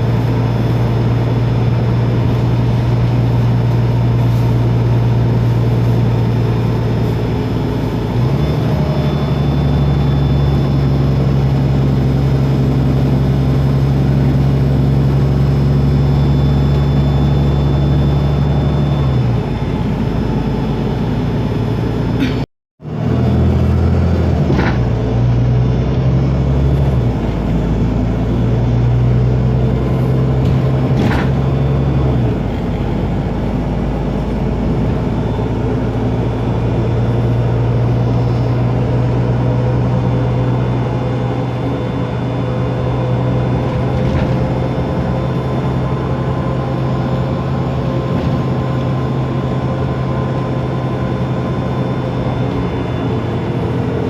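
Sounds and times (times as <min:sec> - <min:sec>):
faint whine: 0:00.0 - 0:22.4
bus diesel engine running: 0:00.0 - 0:54.0.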